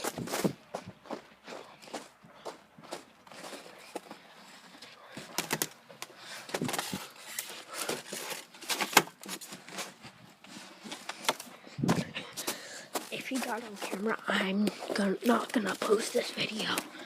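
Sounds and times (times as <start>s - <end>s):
footsteps crunching in snow: 0.0s - 5.0s, 11.9s - 16.8s.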